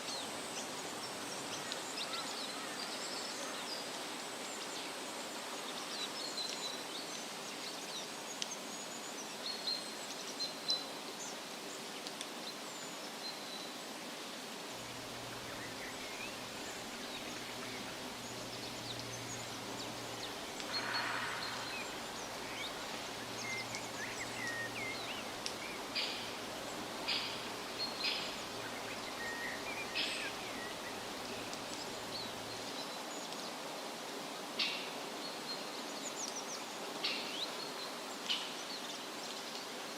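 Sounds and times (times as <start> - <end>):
wind rustling leaves: 0.0 - 39.9
bird chirps: 15.1 - 32.7.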